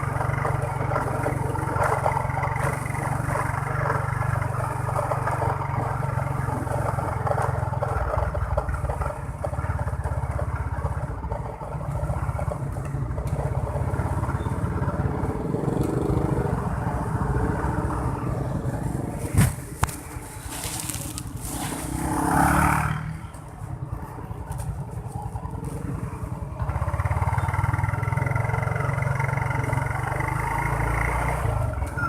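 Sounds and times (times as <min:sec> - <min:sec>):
motorbike engine running: 0:00.0 - 0:31.9
road noise: 0:00.0 - 0:32.0.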